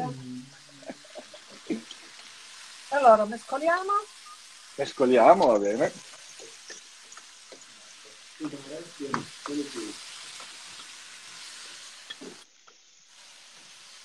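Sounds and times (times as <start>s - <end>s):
food sizzling in a wok: 0.0s - 14.0s
spatula stirring in a wok: 5.4s - 14.0s.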